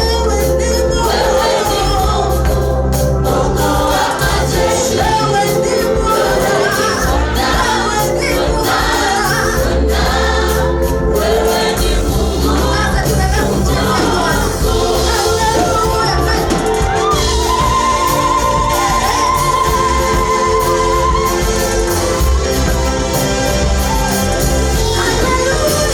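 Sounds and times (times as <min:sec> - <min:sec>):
choir singing gospel music: 0:00.0 - 0:25.9
instrumental backing: 0:00.0 - 0:25.9.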